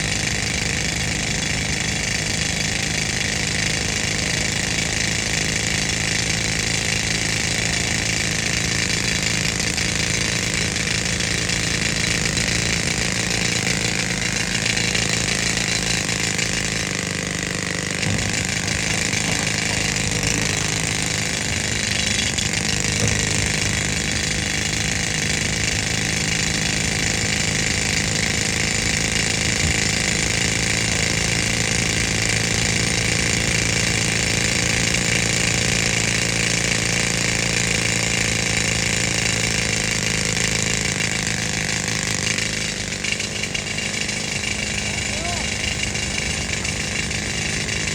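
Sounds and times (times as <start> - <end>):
air compressor engine running: 0.0 - 47.9
pneumatic rock drill hammering: 0.0 - 47.9.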